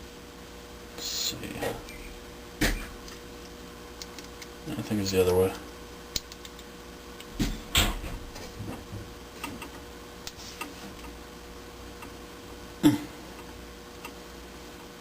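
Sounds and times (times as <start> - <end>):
wire connectors clicking: 6.1 - 7.3.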